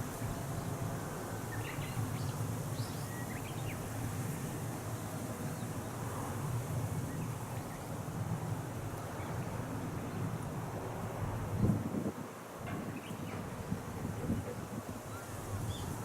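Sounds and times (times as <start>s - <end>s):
wind rumbling on microphone: 3.8s - 16.0s.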